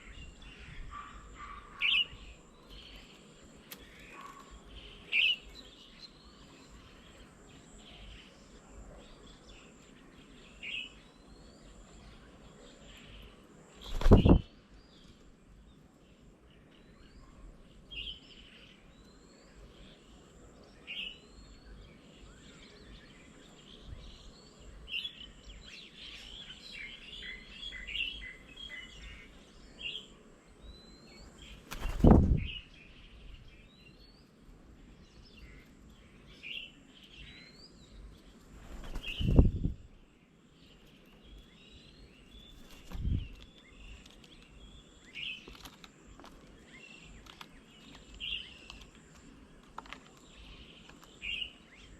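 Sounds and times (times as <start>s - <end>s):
birds chirping and whistling: 13.8s - 14.5s, 35.1s - 39.8s.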